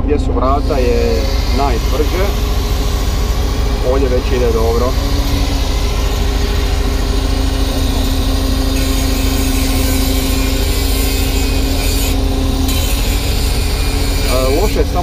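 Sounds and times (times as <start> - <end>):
excavator diesel engine under load: 0.0 - 8.8.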